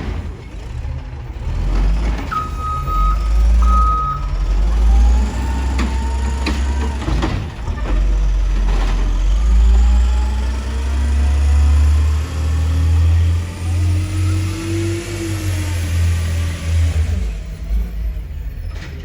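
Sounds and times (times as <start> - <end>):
garbage truck engine rumbling: 0.0 - 19.0
reversing alarm beeps: 2.3 - 4.4.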